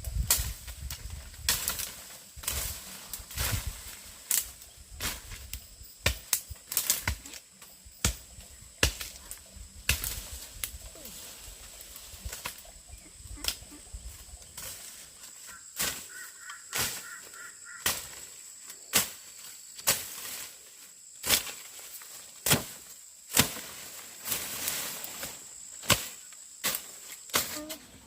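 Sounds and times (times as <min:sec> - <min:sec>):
high-pitched insect drone: 0:04.4 - 0:17.8.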